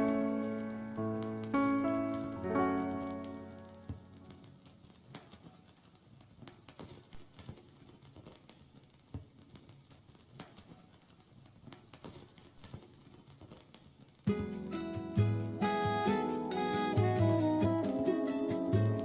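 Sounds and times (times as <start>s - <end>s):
vinyl clicks and pops: 0.0s - 11.0s.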